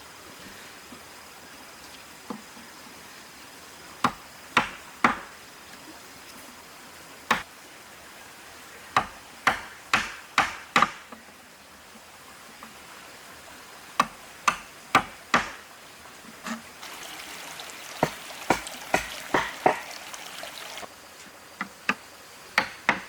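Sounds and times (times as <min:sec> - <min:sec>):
hammer knocks on wood: 0:09.0 - 0:11.0, 0:18.0 - 0:20.1.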